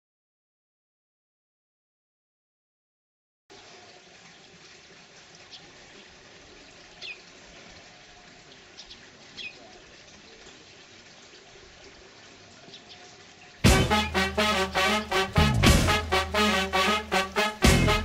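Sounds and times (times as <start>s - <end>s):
steady low hiss: 13.6s - 18.0s.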